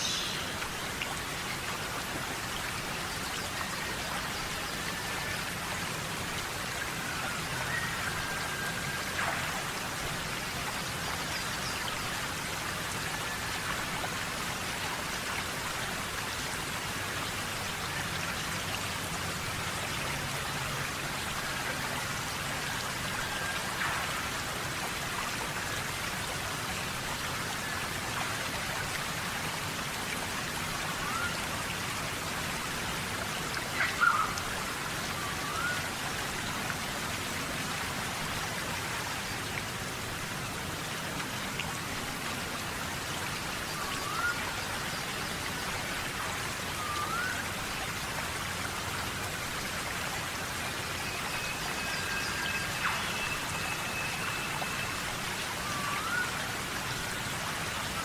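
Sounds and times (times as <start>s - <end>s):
rain on foliage: 0.0s - 58.0s
whistled bird calls: 7.0s - 9.2s, 33.8s - 34.4s, 35.1s - 36.0s, 43.7s - 44.7s, 46.7s - 47.4s, 51.0s - 56.4s.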